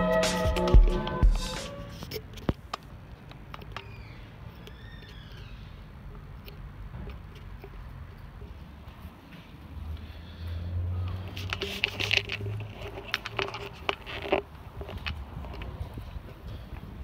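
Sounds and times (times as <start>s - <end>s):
gliding bird calls: 3.8s - 5.8s.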